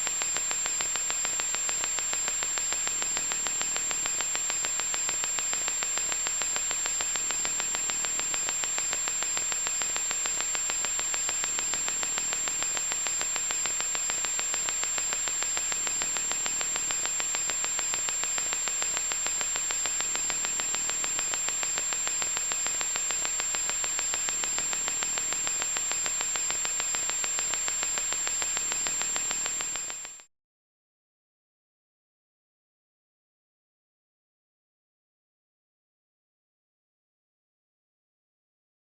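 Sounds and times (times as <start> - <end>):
harsh electronic static hiss: 0.0 - 30.3.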